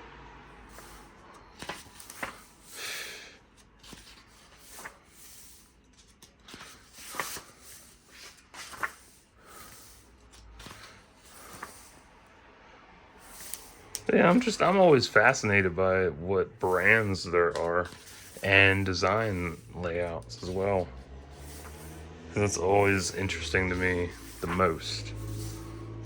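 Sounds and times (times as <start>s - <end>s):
book pages turning: 0.6s - 12.1s, 13.2s - 15.8s, 16.6s - 26.0s.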